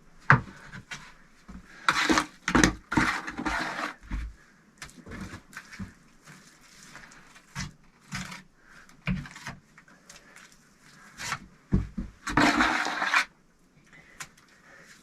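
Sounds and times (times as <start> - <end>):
bricks knocking and scraping: 1.9 - 4.3, 11.3 - 13.3.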